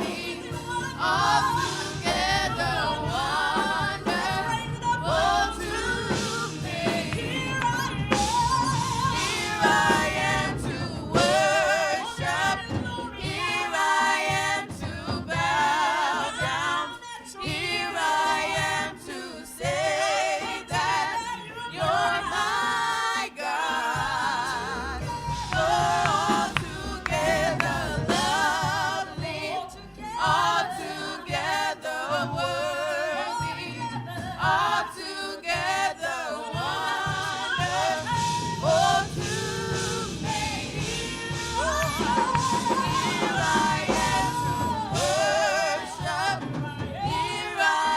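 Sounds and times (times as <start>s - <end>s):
gospel singing: 0.0s - 47.9s
instrumental accompaniment: 0.0s - 47.9s.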